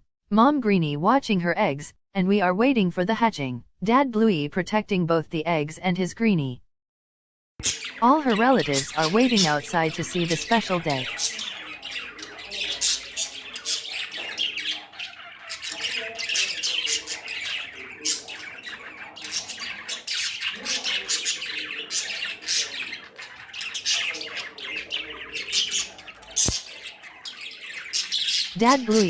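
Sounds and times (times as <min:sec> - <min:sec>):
budgerigars chattering and squawking: 0:07.6 - 0:29.0.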